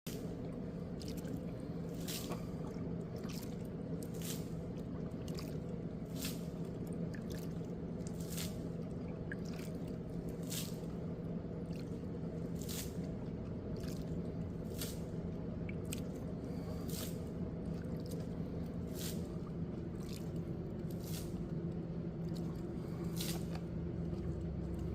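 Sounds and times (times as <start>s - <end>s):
water dripping: 0.1s - 12.5s, 13.1s - 16.4s.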